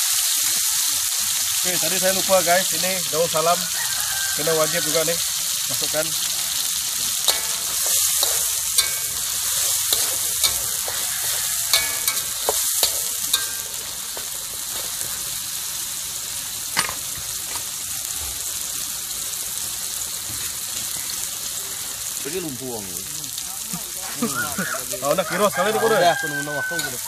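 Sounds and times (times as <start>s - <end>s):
paste sizzling in hot oil: 0.0s - 27.0s
metal spatula scraping a wok: 6.6s - 15.4s.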